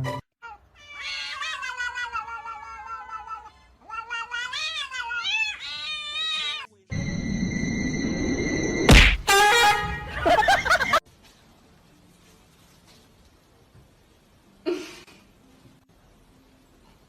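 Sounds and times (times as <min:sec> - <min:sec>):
cat meowing: 0:00.4 - 0:06.7.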